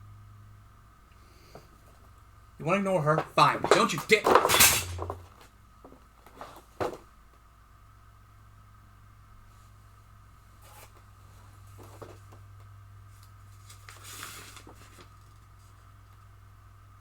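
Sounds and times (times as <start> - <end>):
low electrical hum: 0.0 - 17.0
rustling and handling noises: 10.6 - 15.9.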